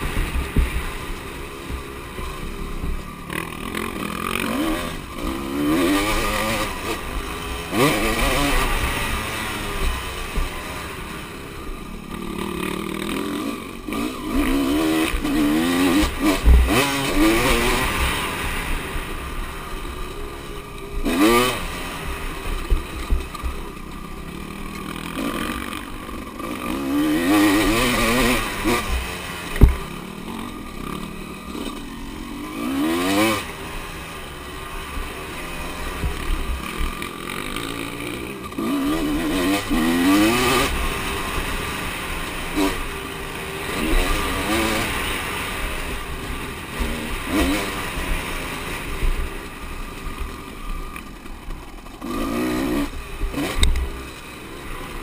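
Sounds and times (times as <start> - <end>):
background engines: 0.0 - 55.0
motocross bike engines revving: 0.0 - 55.0
dull low thumps: 29.6 - 29.8.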